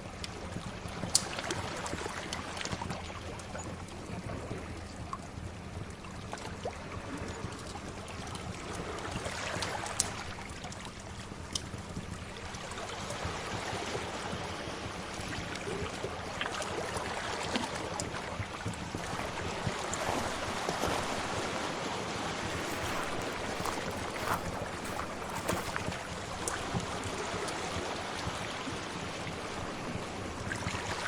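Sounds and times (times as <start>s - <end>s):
wood fire crackling: 22.5s - 26.1s.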